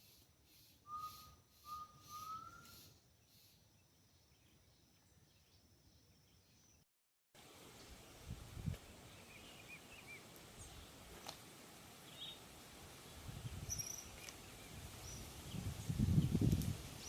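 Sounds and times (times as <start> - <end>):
bird chirps and whistles: 0.8 - 2.9.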